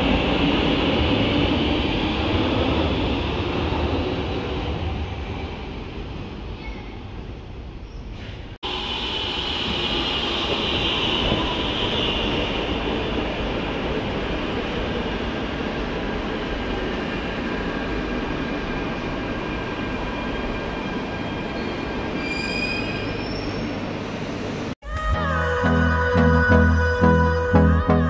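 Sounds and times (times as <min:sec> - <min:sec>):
train wheels rumbling on rails: 0:00.0 - 0:23.2
train wheels squealing: 0:20.1 - 0:23.8.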